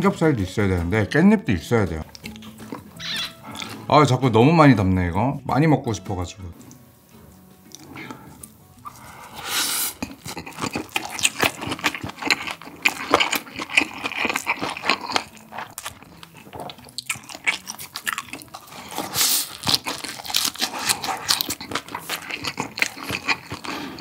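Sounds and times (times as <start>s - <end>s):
wet mouth clicks and smacks chewing: 2.1s - 3.8s, 7.6s - 9.0s, 10.0s - 24.0s.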